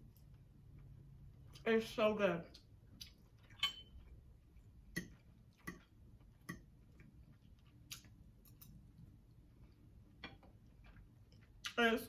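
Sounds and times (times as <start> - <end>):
mouth clicks from chewing: 4.9 - 8.7.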